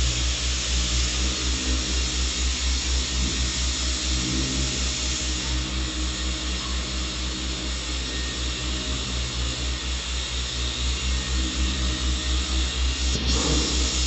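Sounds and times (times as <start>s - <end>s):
machine throbbing steadily: 0.0s - 14.0s
steady hiss: 0.0s - 14.0s.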